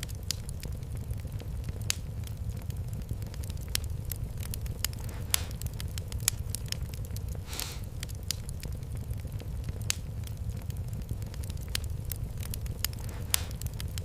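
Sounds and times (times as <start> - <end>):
fireplace fire crackling: 0.0 - 14.0
brief hiss: 7.4 - 7.9.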